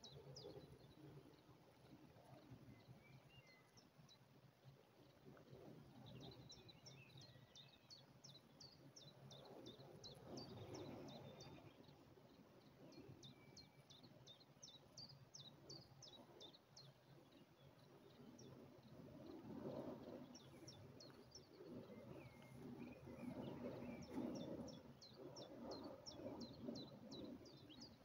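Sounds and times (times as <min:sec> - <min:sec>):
songbird chirping: 0:05.9 - 0:28.0
low rustling noise: 0:14.8 - 0:28.0.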